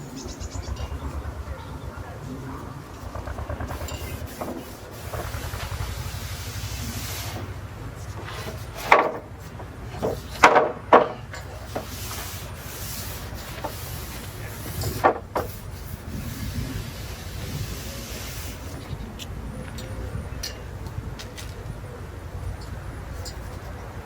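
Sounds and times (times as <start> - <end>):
brush scraping on wood: 2.1 - 10.5, 11.1 - 19.3.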